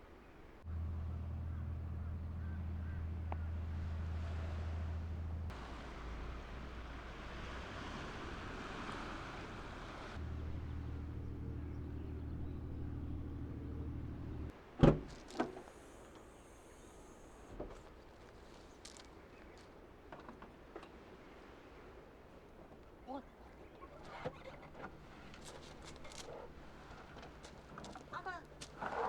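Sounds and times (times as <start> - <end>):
car engine running: 0.7 - 7.5, 8.2 - 14.5.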